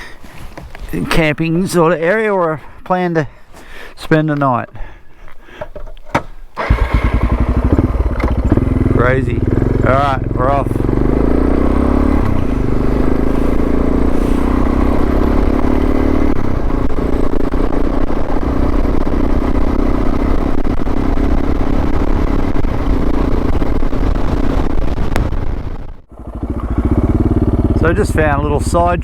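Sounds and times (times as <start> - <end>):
motorcycle engine pulling away: 6.6 - 28.8.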